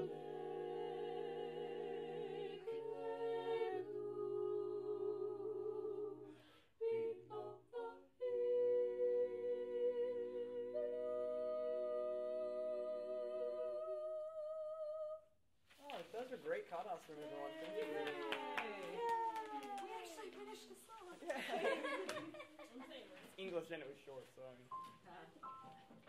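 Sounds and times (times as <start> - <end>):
a cappella choir singing: 0.0 - 15.3.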